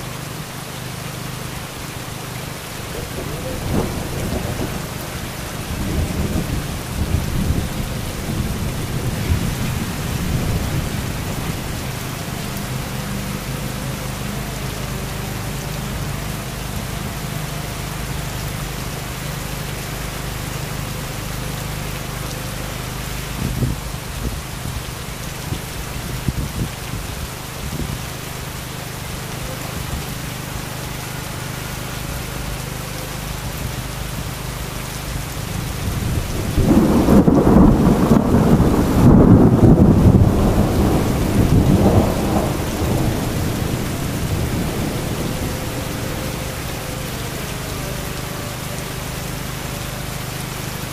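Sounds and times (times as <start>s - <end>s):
heavy rain falling: 0.0s - 50.9s
thunder rumbling: 2.6s - 15.1s, 35.5s - 49.7s.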